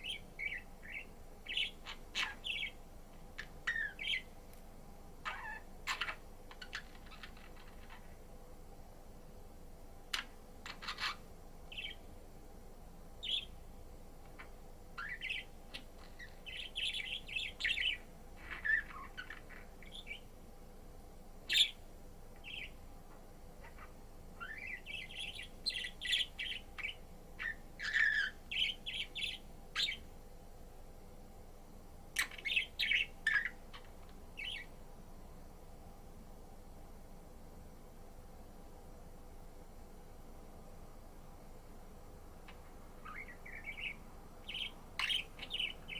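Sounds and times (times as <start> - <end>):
budgerigar chirping and warbling: 0.0 - 2.8, 3.4 - 4.3, 5.2 - 8.1, 10.1 - 12.0, 14.4 - 20.2, 21.5 - 21.8, 22.4 - 22.8, 23.6 - 30.0, 32.2 - 34.7, 43.0 - 45.9.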